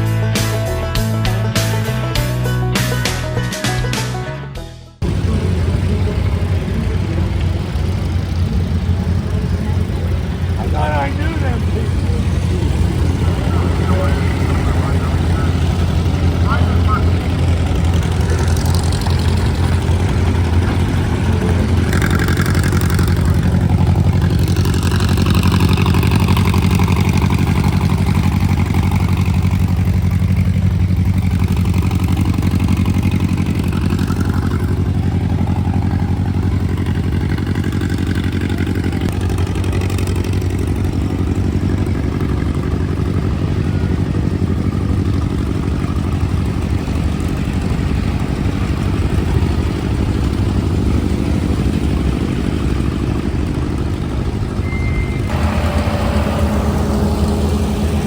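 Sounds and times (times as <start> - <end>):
engine idling: 5.0 - 58.0.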